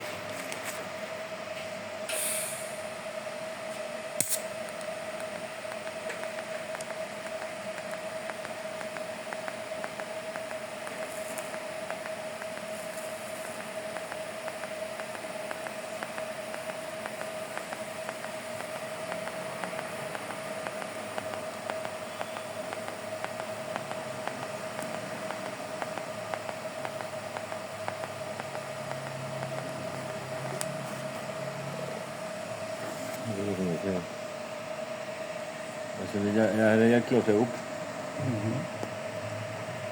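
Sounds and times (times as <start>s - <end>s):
brief hiss: 2.1s - 2.8s
sharp click: 4.2s - 12.8s.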